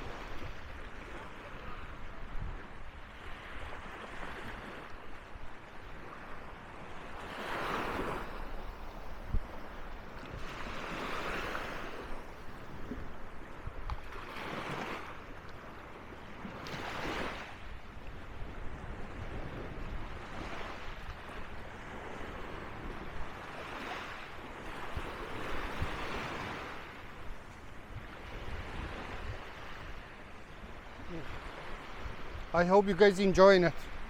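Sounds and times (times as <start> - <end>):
small waves breaking on beach: 0.0 - 34.0.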